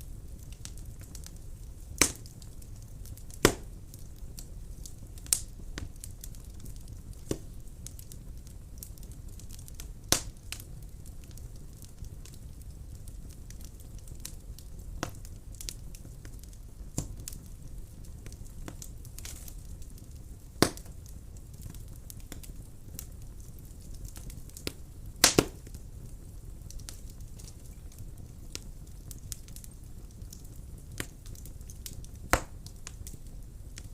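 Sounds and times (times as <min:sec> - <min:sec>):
fire crackling and popping: 0:00.0 - 0:33.9
fire flames rumbling: 0:00.0 - 0:33.9.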